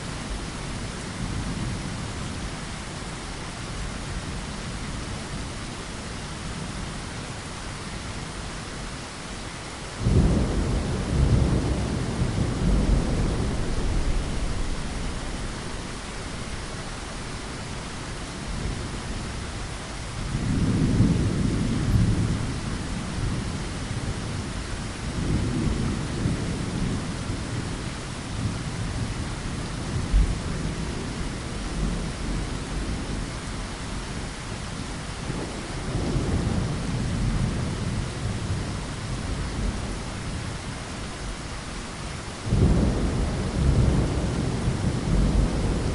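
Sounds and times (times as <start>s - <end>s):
rain hissing: 0.0s - 45.9s.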